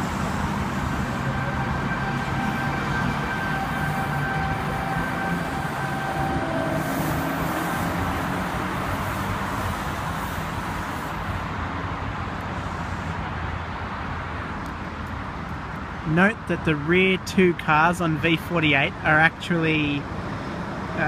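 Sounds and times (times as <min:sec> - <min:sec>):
high steady tone: 0:00.0 - 0:10.8
train wheels rumbling on rails: 0:00.0 - 0:11.5.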